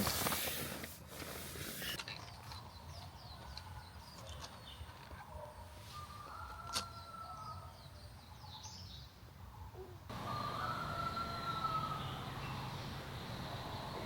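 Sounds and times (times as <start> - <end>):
small birds chirping: 1.9 - 14.0
rooster crowing: 6.0 - 7.7, 10.1 - 12.6
construction machinery rumbling: 10.1 - 14.0.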